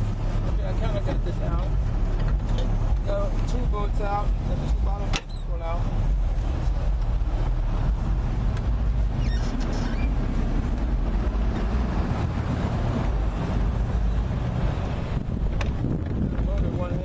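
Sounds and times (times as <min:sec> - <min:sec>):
road traffic rumble: 0:00.0 - 0:17.0
faint squeal: 0:09.2 - 0:10.2.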